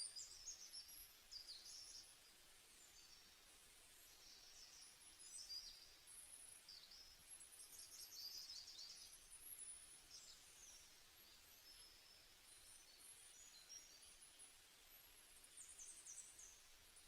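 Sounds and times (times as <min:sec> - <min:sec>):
faint birdsong: 0:00.0 - 0:17.0
quiet hiss: 0:00.0 - 0:17.0.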